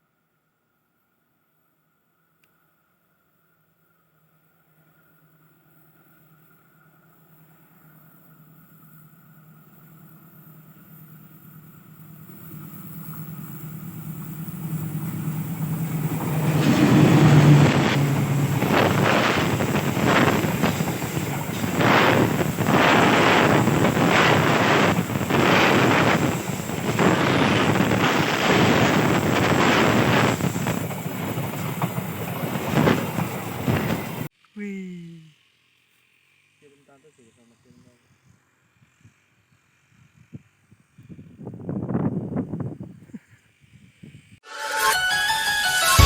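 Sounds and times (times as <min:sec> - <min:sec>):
diesel locomotive engine drone: 0:02.2 - 0:44.4
train wheels rushing past: 0:11.6 - 0:34.3
wheels clacking over rail joints: 0:12.9 - 0:26.2.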